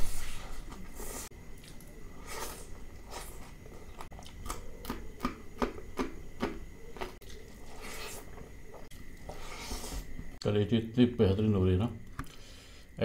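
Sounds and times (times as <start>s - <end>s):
man chewing and biting food: 1.5s - 9.8s.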